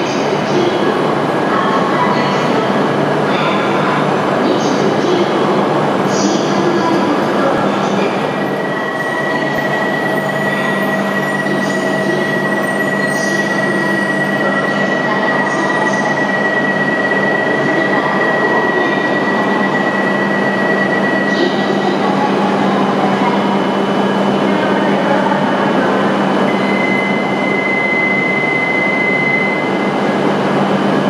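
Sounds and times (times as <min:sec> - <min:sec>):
high-pitched whine: 0:26.4 - 0:31.0.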